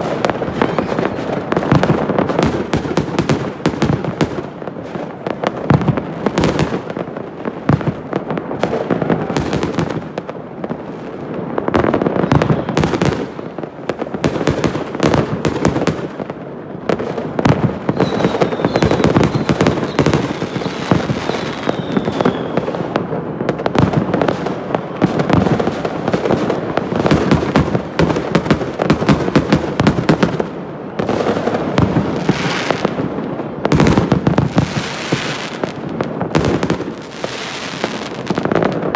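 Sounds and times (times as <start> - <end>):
fireworks crackling and banging: 0.0 - 38.9
faint thin whistle: 17.9 - 22.7.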